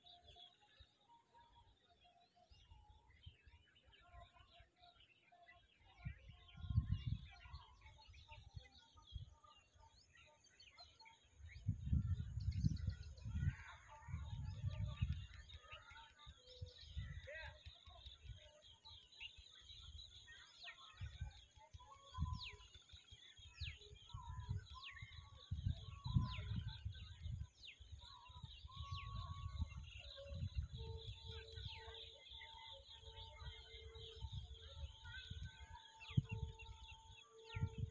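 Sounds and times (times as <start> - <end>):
birds calling with falling whistles: 0.0 - 37.9
wind rumble on microphone: 5.9 - 10.0, 11.4 - 19.1, 19.7 - 37.9.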